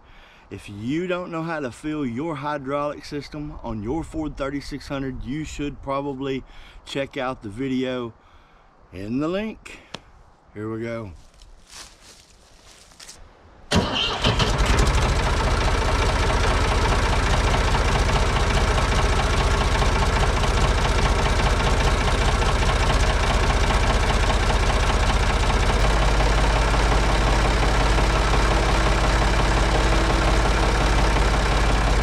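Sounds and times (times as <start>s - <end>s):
diesel tractor engine idling: 13.7s - 32.0s.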